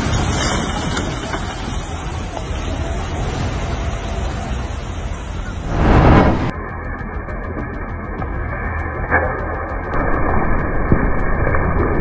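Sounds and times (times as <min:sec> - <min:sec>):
steady rushing noise: 0:04.8 - 0:06.6
deep low rumble: 0:05.6 - 0:06.6.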